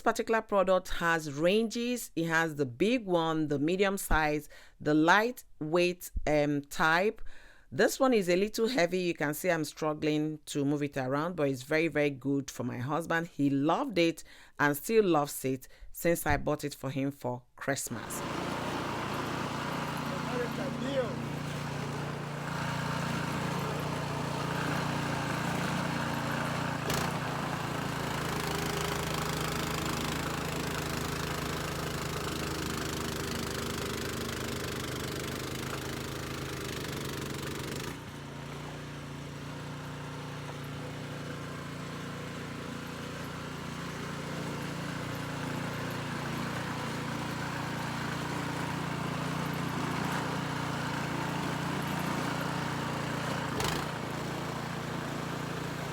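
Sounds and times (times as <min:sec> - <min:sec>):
snowblower engine running: 0:17.9 - 0:55.9.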